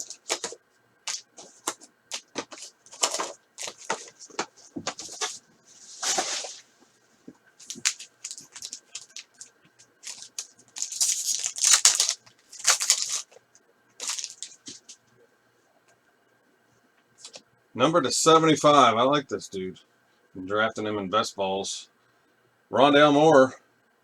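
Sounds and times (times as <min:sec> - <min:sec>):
card wrappers tearing and crinkling: 0:00.0 - 0:05.4, 0:06.0 - 0:06.6, 0:07.6 - 0:13.4, 0:14.0 - 0:15.0.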